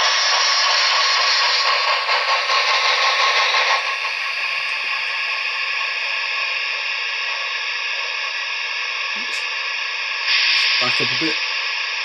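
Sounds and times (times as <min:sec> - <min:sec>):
steam hiss through small speaker: 0:00.0 - 0:12.0.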